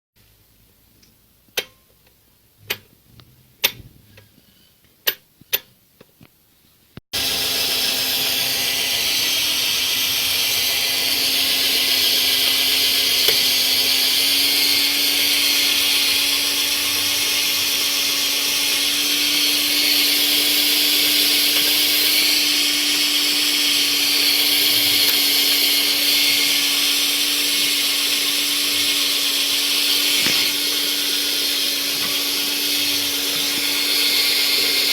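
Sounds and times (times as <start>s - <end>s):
metal lathe running: 7.2s - 34.9s.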